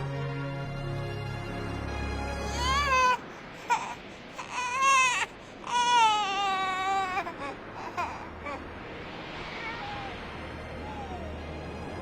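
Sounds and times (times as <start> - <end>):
baby whimpering: 2.4 - 8.6
baby crying: 2.4 - 8.7, 9.6 - 10.2.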